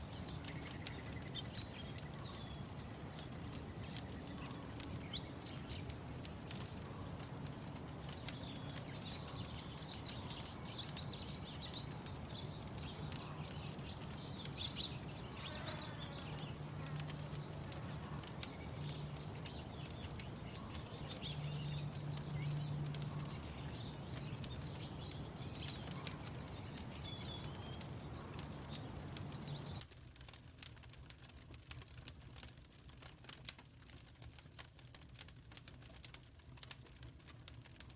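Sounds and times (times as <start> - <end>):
small birds chirping: 0.0 - 29.9
wood fire crackling: 0.0 - 37.9.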